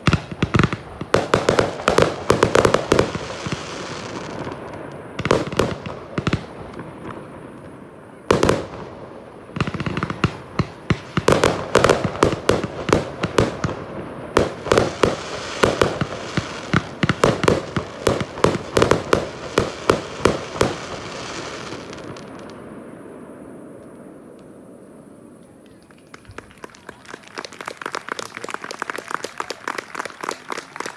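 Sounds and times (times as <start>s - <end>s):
fireworks bangs: 0.0s - 24.7s.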